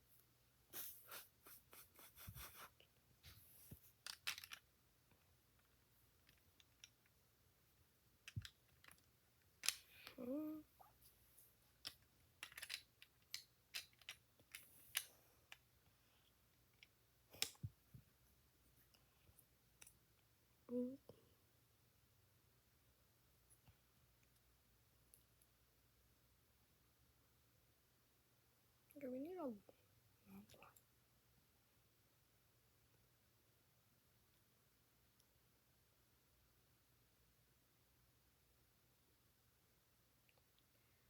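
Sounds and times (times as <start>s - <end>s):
lego bricks clicking: 3.9s - 4.7s, 5.6s - 7.2s, 8.2s - 10.2s, 11.8s - 15.6s, 16.7s - 17.7s.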